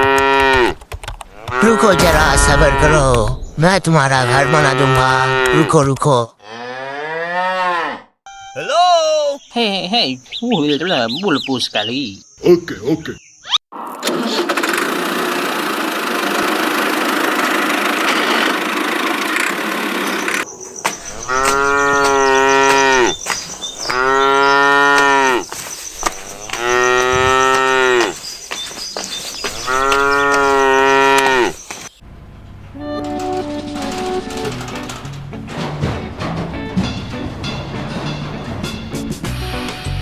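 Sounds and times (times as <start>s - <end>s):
cow mooing: 4.2s - 5.8s, 6.4s - 8.1s, 21.2s - 23.2s, 23.9s - 25.4s, 26.2s - 28.2s, 29.7s - 31.6s.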